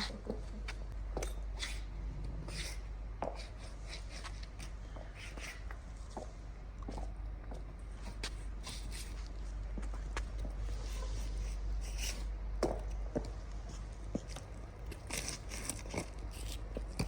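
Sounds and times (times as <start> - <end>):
steady low hum: 0.0 - 17.0
boot footsteps on gritty concrete: 4.2 - 11.4, 12.6 - 17.0.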